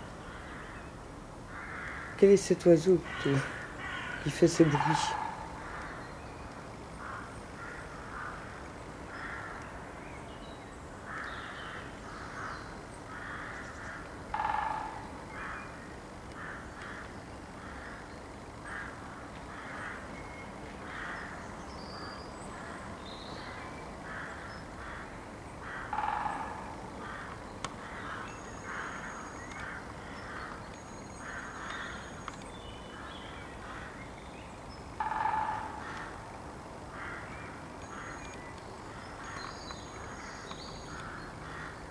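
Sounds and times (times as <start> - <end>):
birds short repeated calls: 1.6 - 8.4.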